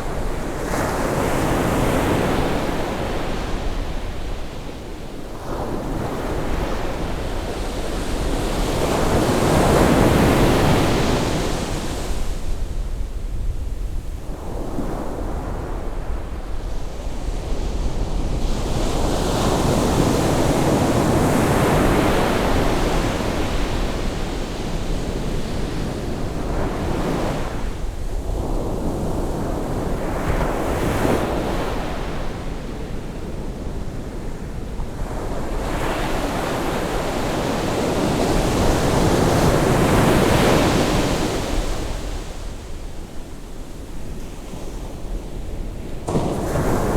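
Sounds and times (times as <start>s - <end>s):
ocean waves breaking on shore: 17.7s - 46.9s.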